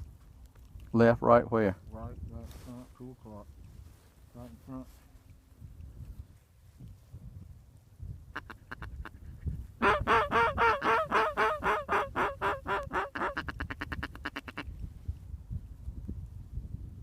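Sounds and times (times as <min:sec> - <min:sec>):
duck call quacks: 0:08.3 - 0:09.2, 0:09.8 - 0:14.7.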